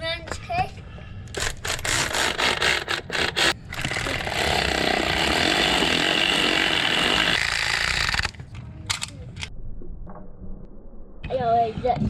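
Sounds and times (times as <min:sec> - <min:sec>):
power tool driving bolts: 0:01.3 - 0:08.4.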